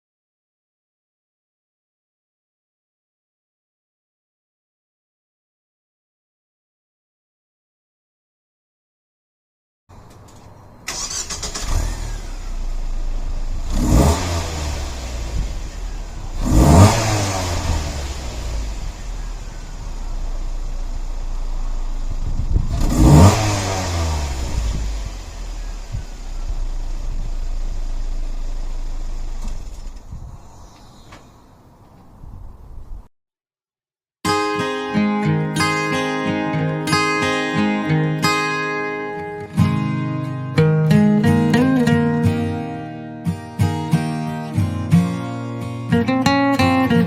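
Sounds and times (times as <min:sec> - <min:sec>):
car engine idling and revving: 0:10.1 - 0:31.0.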